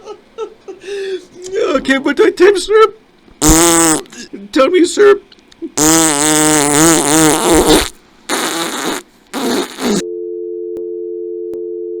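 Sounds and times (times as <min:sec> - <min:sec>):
short noisy blasts: 0:05.8 - 0:10.0.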